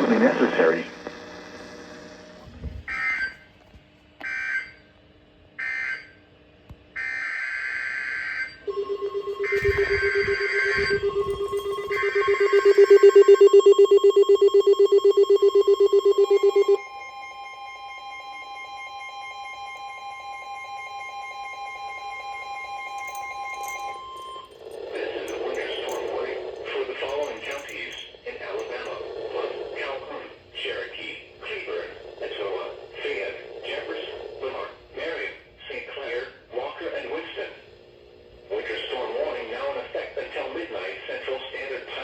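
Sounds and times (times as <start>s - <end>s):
steady warning alarm tone: 2.8s - 3.5s, 7.0s - 29.8s
loud pulsing alert tone: 8.7s - 16.5s.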